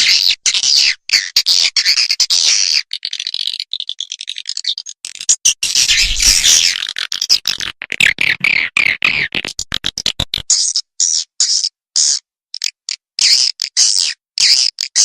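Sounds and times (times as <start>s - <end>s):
high twittering chirps: 5.7s - 6.8s.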